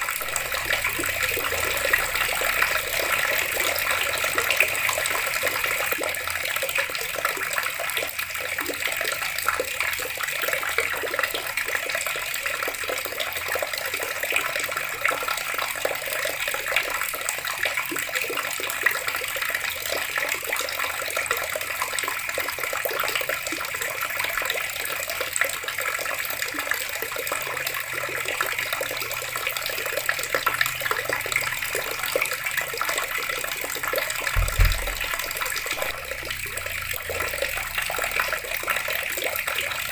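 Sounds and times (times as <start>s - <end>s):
tap water running: 0.0s - 23.4s, 26.6s - 39.9s
low thump: 34.3s - 36.6s.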